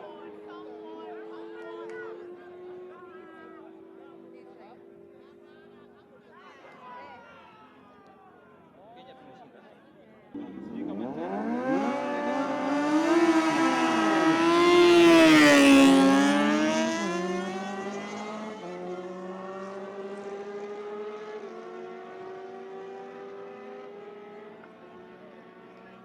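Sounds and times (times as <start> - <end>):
superbike passing at full throttle: 10.4 - 25.6.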